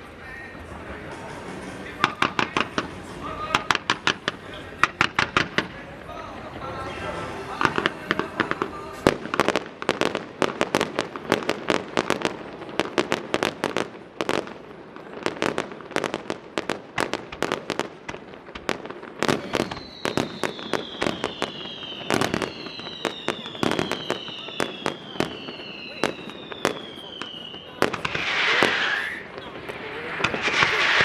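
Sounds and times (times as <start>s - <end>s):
firework bangs and cracks: 0.6s - 6.1s, 6.9s - 31.0s
falling firework whistles: 19.2s - 31.0s.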